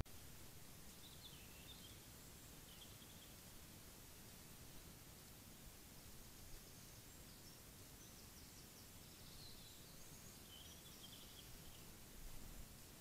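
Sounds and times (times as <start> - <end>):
microphone hiss: 0.0 - 13.0
distant songbird singing: 0.5 - 3.7, 6.0 - 12.5.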